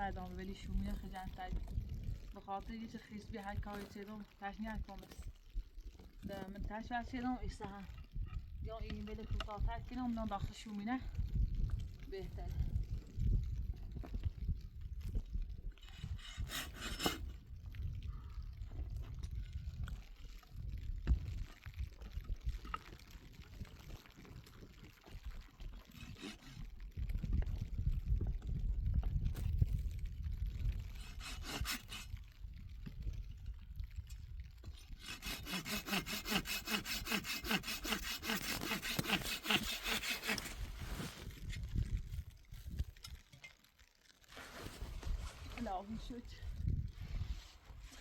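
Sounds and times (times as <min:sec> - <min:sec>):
hand saw cutting wood: 0:15.8 - 0:17.4, 0:25.8 - 0:26.6, 0:30.8 - 0:32.1, 0:34.6 - 0:41.2
rubbing and handling noise: 0:35.0 - 0:46.3, 0:47.0 - 0:48.0.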